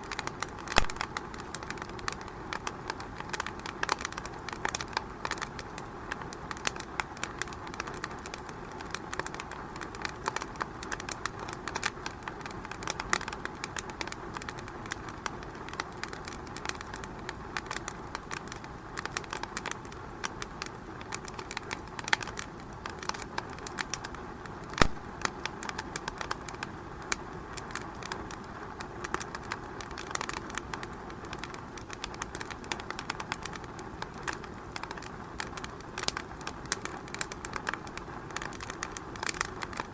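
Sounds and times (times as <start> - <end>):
wood fire crackling: 0.0 - 39.9
loud pop of fire: 0.7 - 1.2, 24.7 - 25.3.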